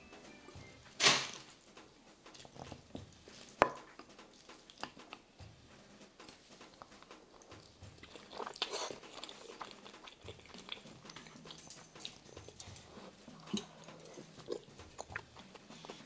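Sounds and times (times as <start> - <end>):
person chewing food: 2.3 - 5.3, 6.3 - 16.0.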